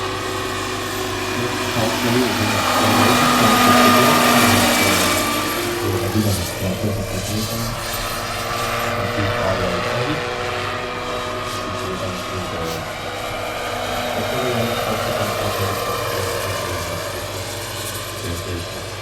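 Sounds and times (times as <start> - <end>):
helicopter rotor noise: 0.0 - 19.0
helicopter turbine whine: 0.0 - 19.0.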